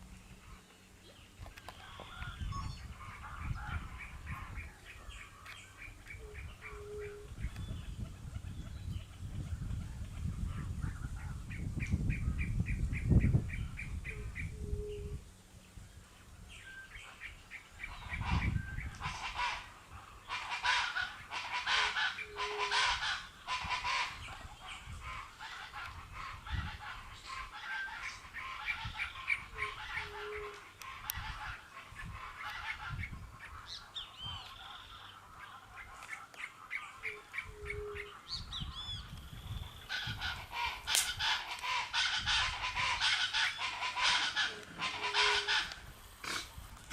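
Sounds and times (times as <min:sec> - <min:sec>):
animal chattering calls: 0:39.9 - 0:46.5
honk-like animal cries: 0:40.0 - 0:45.8.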